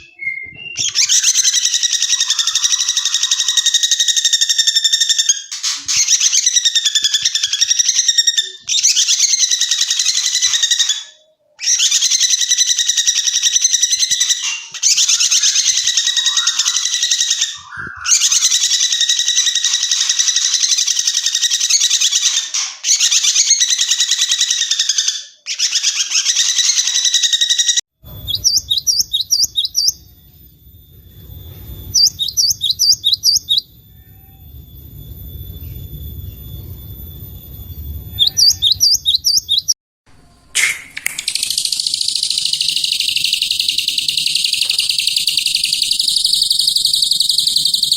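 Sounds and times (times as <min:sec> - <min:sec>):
songbird trilling: 0:00.0 - 0:22.5, 0:28.2 - 0:30.1, 0:31.8 - 0:34.4, 0:38.1 - 0:39.8, 0:40.6 - 0:47.9
bird high notes: 0:14.0 - 0:21.4
low rumbling background: 0:28.0 - 0:39.6.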